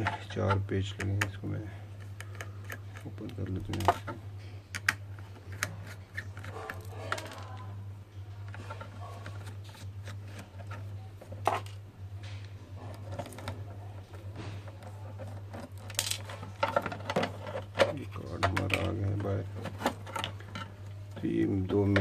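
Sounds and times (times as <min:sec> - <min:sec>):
steady low hum: 0:00.0 - 0:22.0
clicks and scrapes of screwdriver and plastic: 0:02.0 - 0:07.6.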